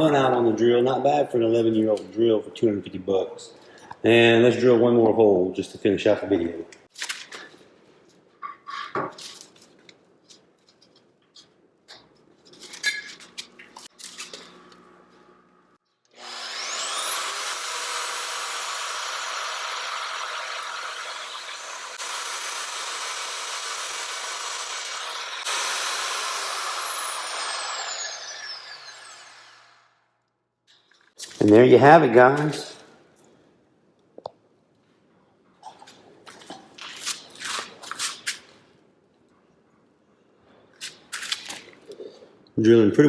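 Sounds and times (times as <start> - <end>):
magnetic drill motor whining: 16.1 - 29.8.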